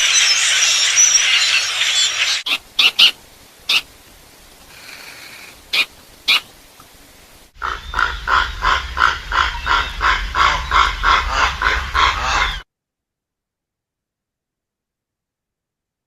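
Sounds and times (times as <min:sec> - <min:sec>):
harsh grunting animal calls: 0:07.6 - 0:12.6.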